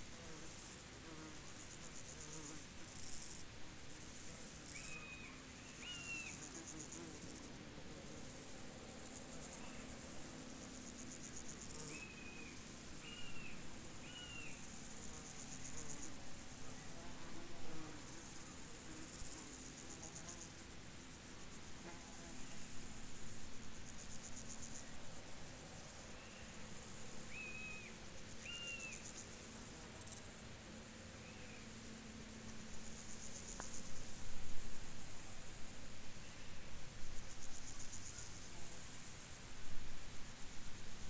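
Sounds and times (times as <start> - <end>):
insects trilling: 0.7 - 7.5, 8.3 - 34.2.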